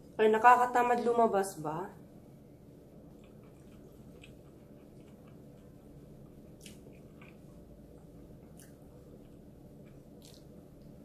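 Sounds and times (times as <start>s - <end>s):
person chewing food: 2.9s - 11.0s.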